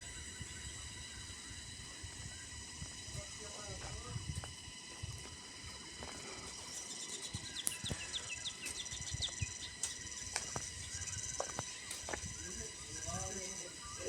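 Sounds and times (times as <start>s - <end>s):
insects buzzing: 0.0s - 14.0s
songbird whistling notes: 6.5s - 14.0s
scattered clicks: 7.6s - 8.1s, 9.8s - 10.8s.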